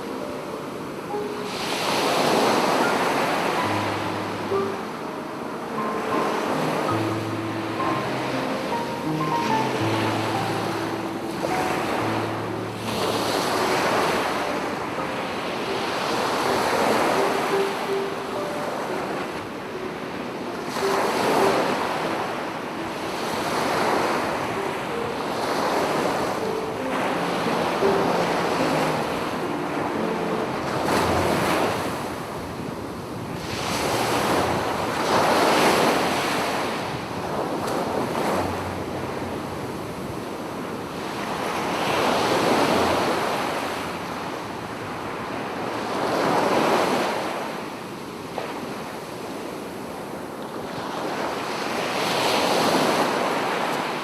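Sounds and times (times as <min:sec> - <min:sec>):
sea waves breaking on a beach: 0:00.0 - 0:54.0
wind rumbling on microphone: 0:30.6 - 0:53.4.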